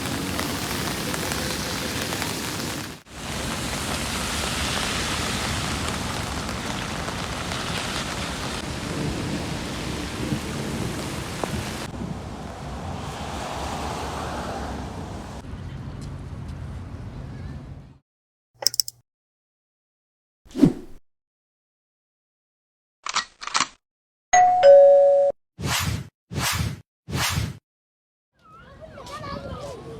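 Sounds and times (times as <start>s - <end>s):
heavy rain pouring: 0.0s - 15.4s.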